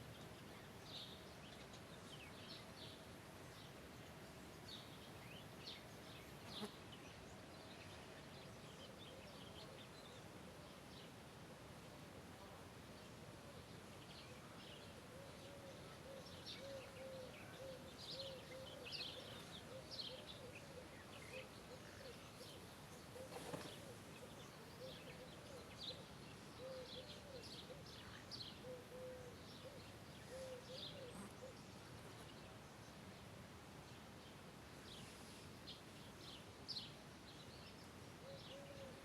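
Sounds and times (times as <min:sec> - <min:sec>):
faint birds chirping: 0:00.0 - 0:39.0.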